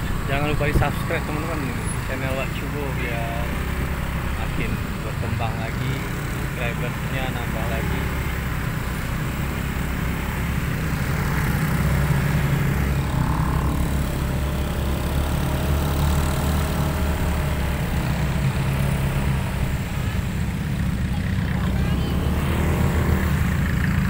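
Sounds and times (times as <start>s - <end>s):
motorcycle engine drone: 0.0s - 24.0s
road and wind noise: 0.0s - 24.0s.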